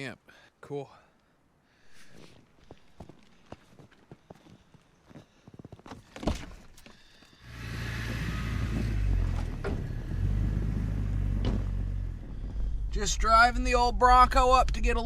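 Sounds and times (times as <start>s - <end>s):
car engine rumbling: 7.4s - 15.0s.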